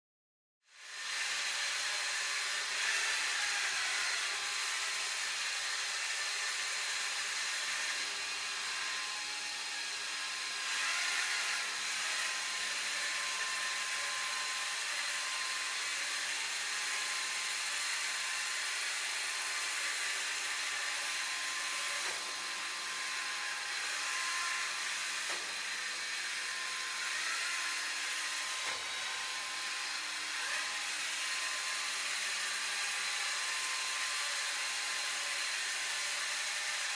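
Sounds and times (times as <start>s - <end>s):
robot vacuum motor whine: 0.8s - 36.9s.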